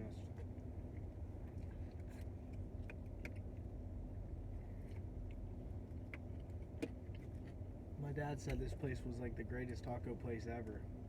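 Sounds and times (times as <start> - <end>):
low background rumble: 0.0 - 11.0
clicks and taps handling food: 6.0 - 7.6.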